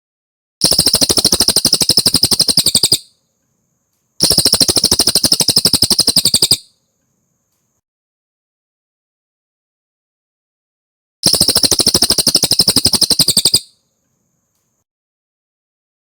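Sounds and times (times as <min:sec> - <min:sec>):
songbird trilling: 0:00.6 - 0:03.1, 0:04.2 - 0:06.7, 0:11.3 - 0:13.7.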